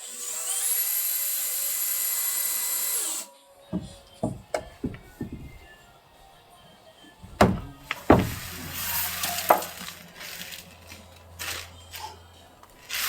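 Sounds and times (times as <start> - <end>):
sharp knocks and clatters: 3.8 - 5.8, 7.2 - 10.0.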